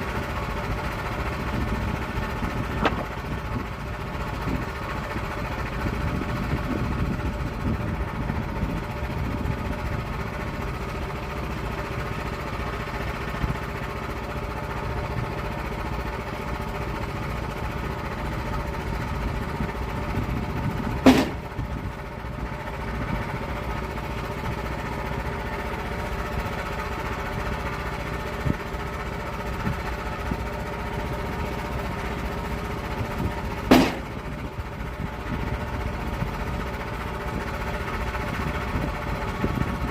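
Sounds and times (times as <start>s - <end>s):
saw engine cutting log: 2.2s - 3.4s, 21.0s - 21.6s, 33.6s - 34.4s
sharp knocks: 21.0s - 21.5s, 33.7s - 34.3s.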